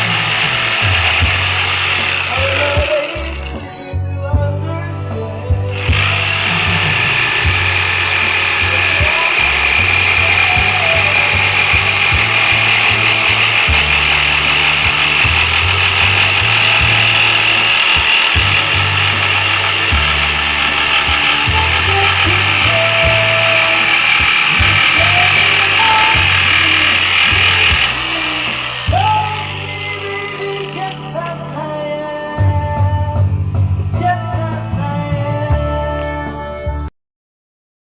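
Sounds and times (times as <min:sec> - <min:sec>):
electric jigsaw running: 0:00.0 - 0:03.9, 0:05.1 - 0:31.4.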